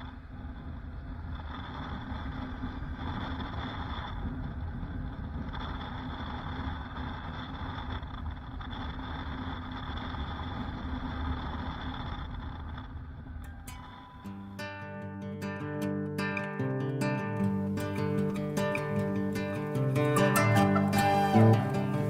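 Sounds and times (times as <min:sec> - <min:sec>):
motorcycle engine running: 0:00.0 - 0:14.6.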